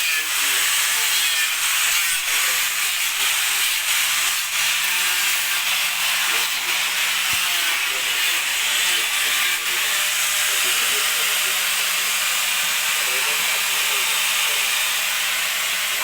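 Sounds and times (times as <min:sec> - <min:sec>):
faint voices: 0:00.0 - 0:03.6, 0:06.0 - 0:16.0
machinery hissing: 0:09.9 - 0:16.0.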